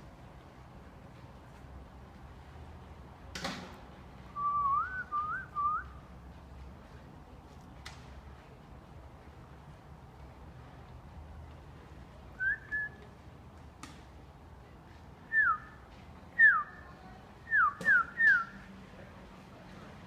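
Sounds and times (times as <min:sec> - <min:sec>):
short clear whistles: 0:12.4 - 0:13.0, 0:17.5 - 0:18.7.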